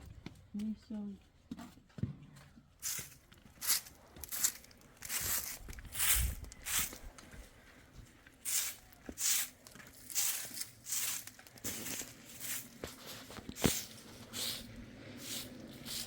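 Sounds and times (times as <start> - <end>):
scratchy rustling strokes: 2.8 - 7.3, 8.4 - 16.0.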